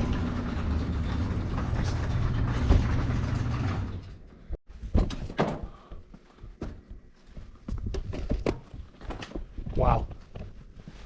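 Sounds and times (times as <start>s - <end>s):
garage door opener running: 0.0s - 4.4s.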